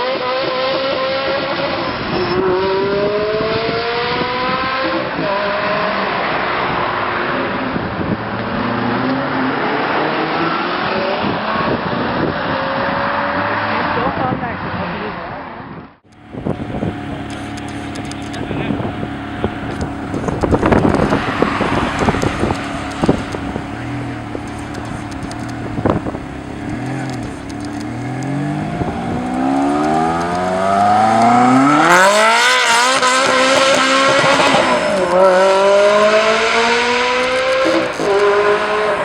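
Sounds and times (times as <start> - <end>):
car engine accelerating: 0.0 - 39.0
engine knocks: 16.1 - 35.9.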